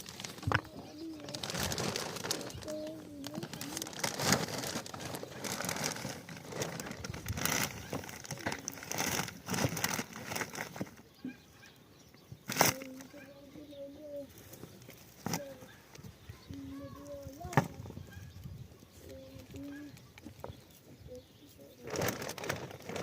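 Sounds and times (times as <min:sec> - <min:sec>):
rustling and crackling: 0:00.0 - 0:11.4, 0:12.4 - 0:23.0
bird low cooing call: 0:00.5 - 0:08.8, 0:12.7 - 0:14.4.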